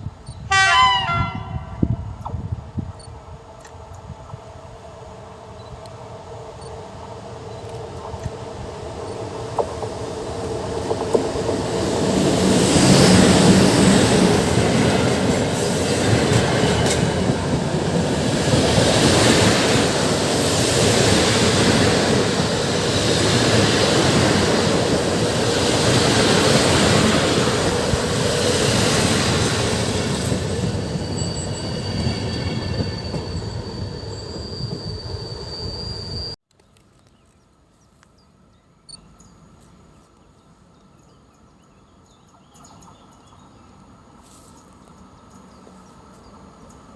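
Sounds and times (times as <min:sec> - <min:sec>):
faint outdoor ambience: 0:00.0 - 0:46.9
train passing at speed: 0:00.4 - 0:36.4, 0:42.0 - 0:46.9
wheels clicking over rail joints: 0:07.4 - 0:12.2
thin high squeal: 0:30.7 - 0:36.4.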